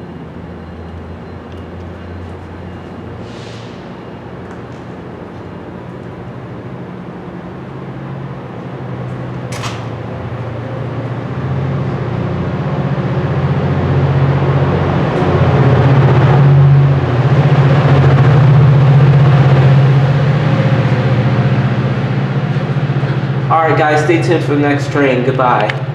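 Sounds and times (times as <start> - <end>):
locomotive engine drone: 0.0 - 25.9.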